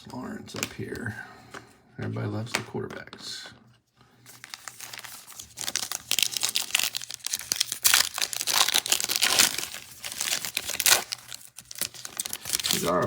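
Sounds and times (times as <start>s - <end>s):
wrapper tearing and crinkling: 4.3s - 13.0s.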